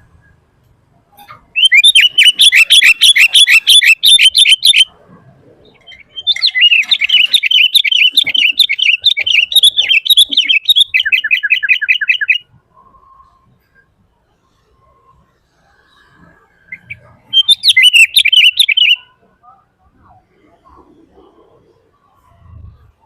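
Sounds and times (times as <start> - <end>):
bulbul singing: 1.2 - 4.9, 5.6 - 12.5, 16.7 - 19.2.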